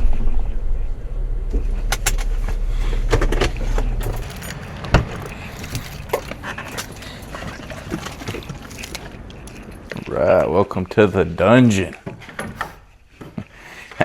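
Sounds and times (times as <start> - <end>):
car engine running: 0.0 - 10.2
keys jangling and clicking: 1.9 - 10.1.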